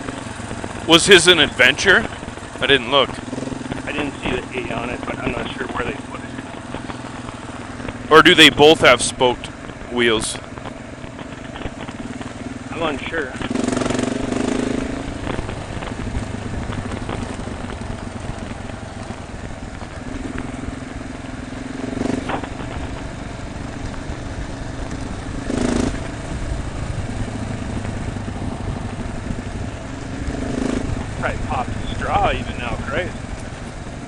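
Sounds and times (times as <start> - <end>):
motorcycle engine running: 0.0 - 34.0
wind rush on microphone: 22.2 - 33.1.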